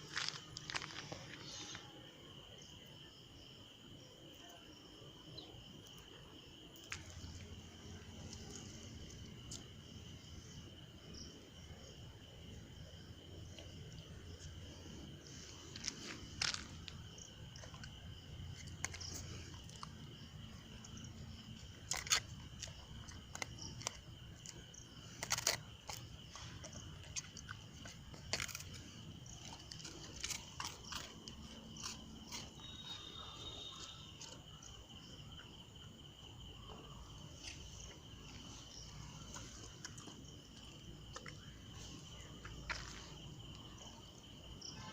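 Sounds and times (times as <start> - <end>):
sharp clicks and crunches: 0.0 - 1.8, 6.8 - 9.7, 15.5 - 34.8
high insect trill: 0.0 - 44.9.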